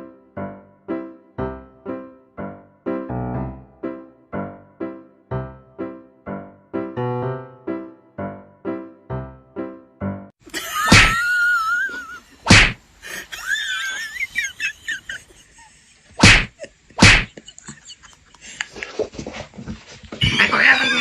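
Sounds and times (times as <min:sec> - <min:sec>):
piano notes: 0:00.0 - 0:10.4
loud whacks: 0:10.9 - 0:11.2, 0:12.5 - 0:12.8, 0:16.2 - 0:17.3
scuffling: 0:18.6 - 0:21.0.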